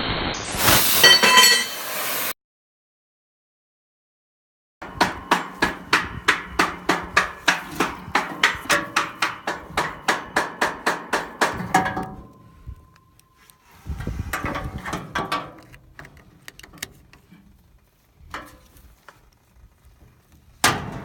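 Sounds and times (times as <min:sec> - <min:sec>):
ringing hammer blows: 0:01.0 - 0:01.9, 0:04.8 - 0:13.2.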